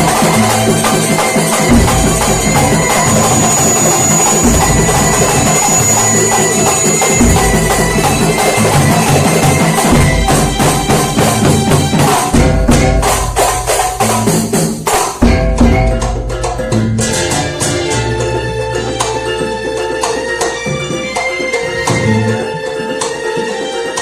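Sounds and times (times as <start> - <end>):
sustained melodic notes: 0.0 - 13.2, 15.3 - 24.0
hand drums with jingles: 0.0 - 24.0
bass drum strokes: 7.2 - 18.2.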